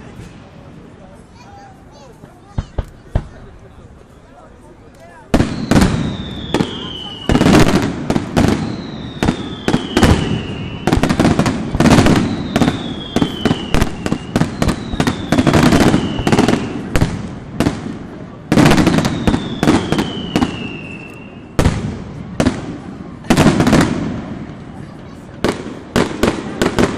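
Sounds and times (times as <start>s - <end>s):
firework bangs and crackle: 2.4s - 26.9s
descending firework whistles: 5.4s - 17.0s, 18.7s - 21.6s.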